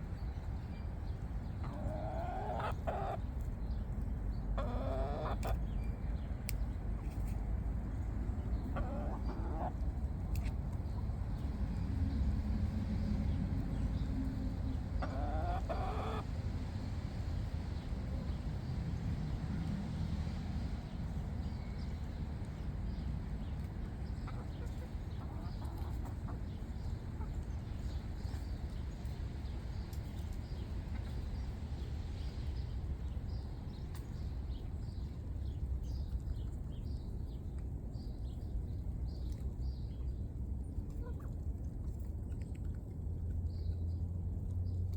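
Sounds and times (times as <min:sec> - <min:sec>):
chickens clucking: 0:01.4 - 0:03.2, 0:04.5 - 0:05.6, 0:08.3 - 0:11.4, 0:13.6 - 0:16.2, 0:23.4 - 0:28.4.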